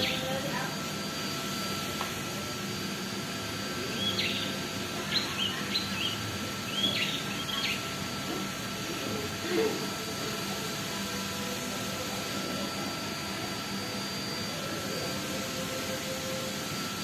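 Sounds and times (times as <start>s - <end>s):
bird chirping: 4.0s - 7.8s.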